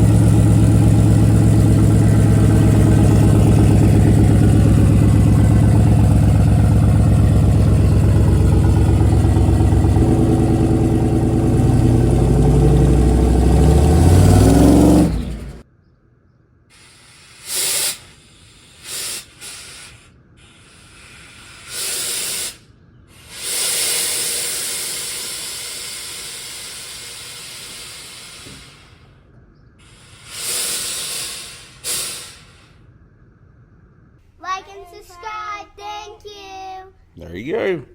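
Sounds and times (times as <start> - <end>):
air hissing: 0.0 - 15.6, 16.7 - 29.2, 29.8 - 32.9
vehicle engine running: 0.0 - 15.7, 23.1 - 34.2.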